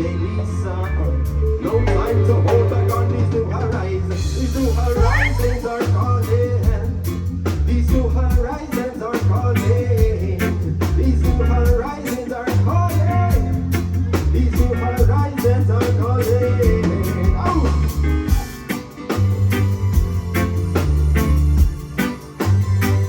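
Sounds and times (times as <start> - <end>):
reggae band playing: 0.0 - 23.0.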